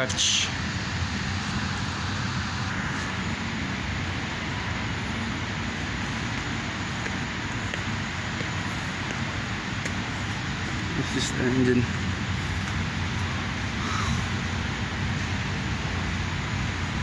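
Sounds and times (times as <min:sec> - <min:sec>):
rumbling background noise: 0:00.0 - 0:17.0.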